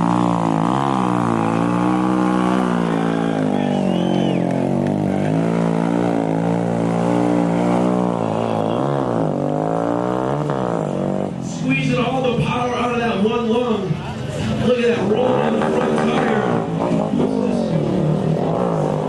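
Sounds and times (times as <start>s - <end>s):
mini bike engine revving: 0.0s - 11.3s.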